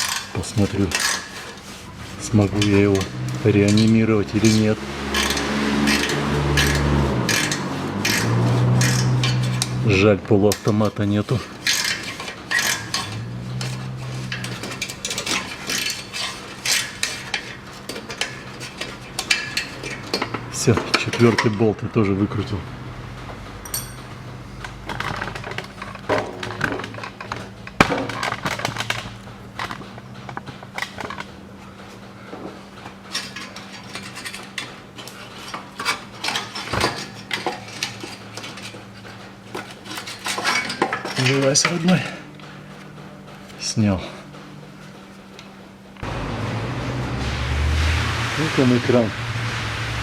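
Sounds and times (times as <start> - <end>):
metallic clanks and rattles: 0.0 - 46.4
ratchet wrench clicking: 5.1 - 9.7
low hum: 46.0 - 50.0.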